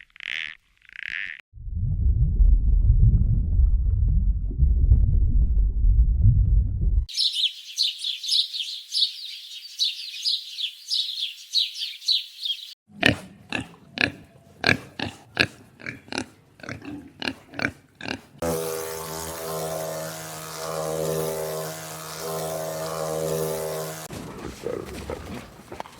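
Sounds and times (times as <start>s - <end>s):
high peeping chirps: 7.1s - 12.8s
steady pitched drone: 18.4s - 24.1s.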